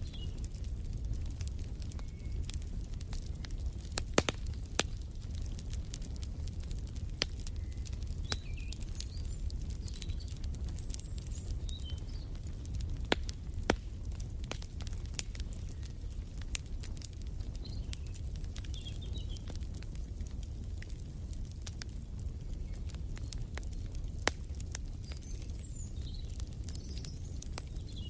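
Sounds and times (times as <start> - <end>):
faint birds chirping: 0.0 - 3.8, 7.3 - 13.0, 14.8 - 20.4, 22.2 - 28.0
wood fire crackling: 0.0 - 28.0.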